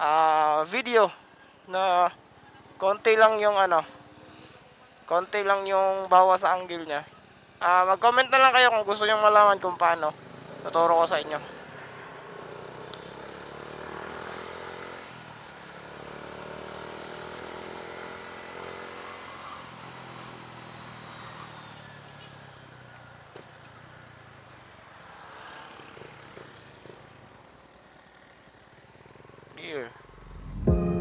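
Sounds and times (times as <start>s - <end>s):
motorcycle engine while riding: 10.2s - 30.7s.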